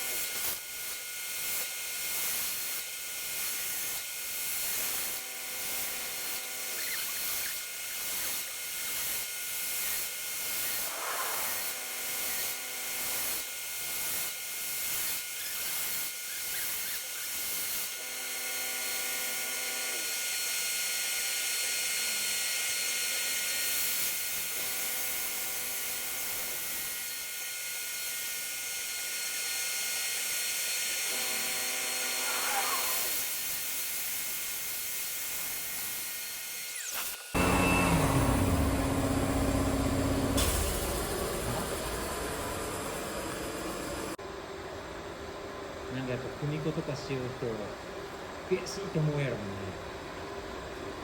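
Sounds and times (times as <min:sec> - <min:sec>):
router spindle hissing: 0:04.5 - 0:13.4, 0:14.0 - 0:27.4, 0:29.3 - 0:44.2
steady whining tones: 0:36.8 - 0:44.2.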